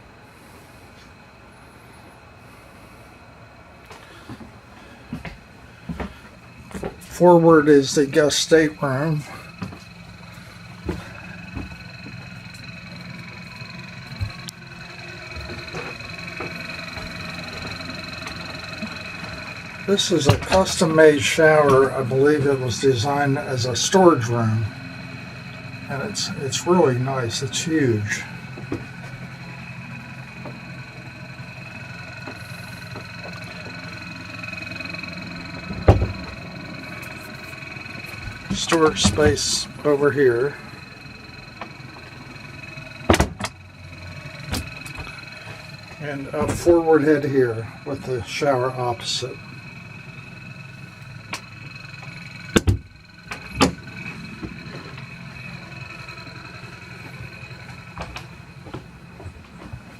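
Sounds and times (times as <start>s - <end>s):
machinery humming with high whine: 0.0s - 59.9s
sharp knocks and thumps: 35.6s - 36.4s, 43.1s - 43.6s, 52.5s - 55.0s.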